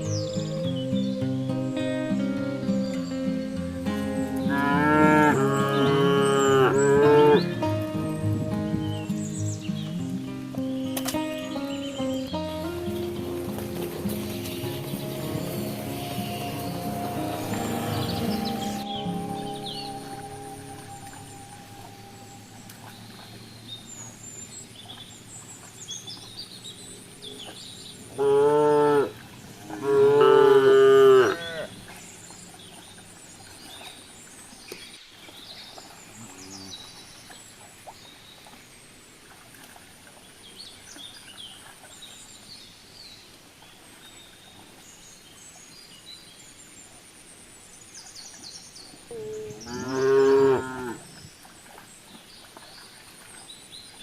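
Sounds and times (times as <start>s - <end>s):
cattle mooing: 4.2s - 7.8s, 29.7s - 31.7s, 49.1s - 51.1s.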